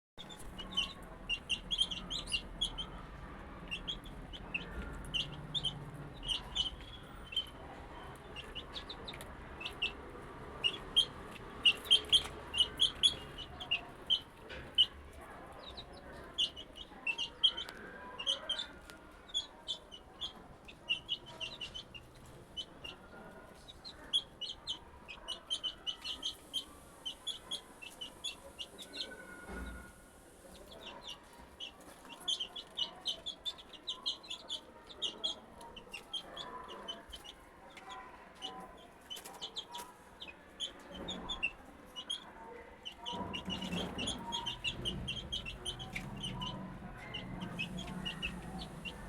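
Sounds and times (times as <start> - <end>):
chicks peeping: 0.2 - 49.0.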